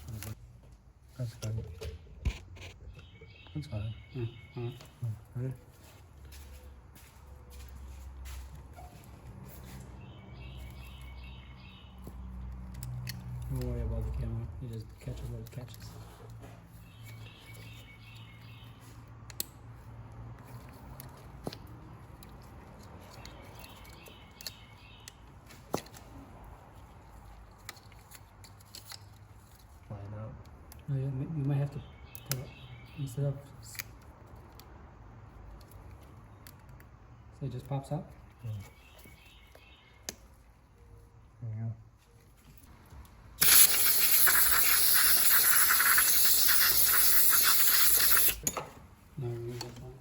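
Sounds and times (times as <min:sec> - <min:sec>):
tools clicking and tapping: 0:12.0 - 0:13.7
pressurized gas jet hissing: 0:43.4 - 0:48.4.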